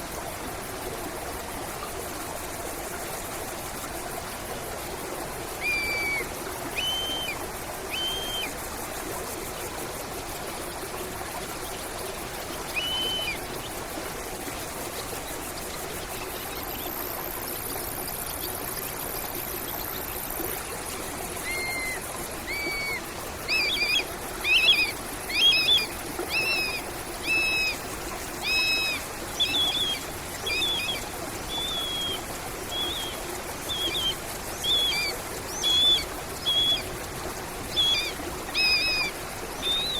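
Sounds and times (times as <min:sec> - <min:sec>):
stream water trickling: 0:00.0 - 0:39.9
songbird calling: 0:05.6 - 0:08.6, 0:12.3 - 0:13.9, 0:21.4 - 0:39.9.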